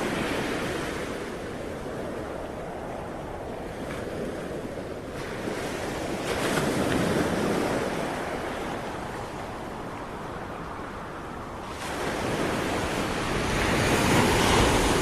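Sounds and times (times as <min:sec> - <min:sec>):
ocean waves breaking on shore: 0:00.0 - 0:15.0.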